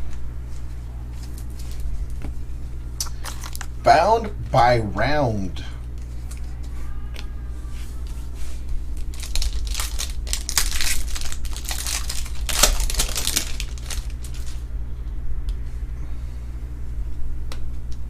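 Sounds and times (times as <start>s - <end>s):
steady low hum: 0.0s - 18.0s
plastic wrapper crinkling and tearing: 3.0s - 3.7s, 9.0s - 14.6s.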